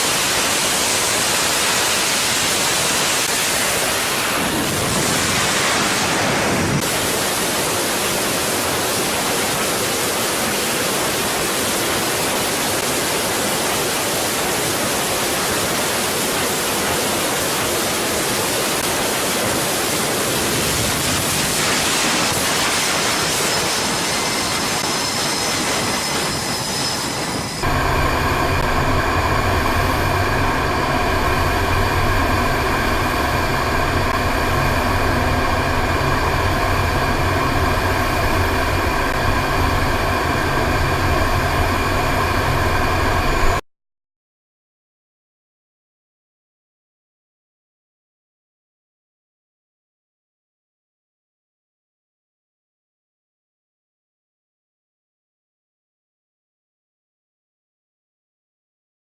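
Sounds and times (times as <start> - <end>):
aircraft engine rush: 0.0 - 43.6
engine drone with held tones: 18.8 - 43.6.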